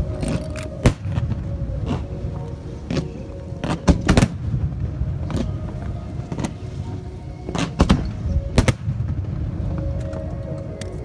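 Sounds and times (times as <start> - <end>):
low rumble: 0.0 - 11.0
fireworks bursting bangs: 2.8 - 9.9.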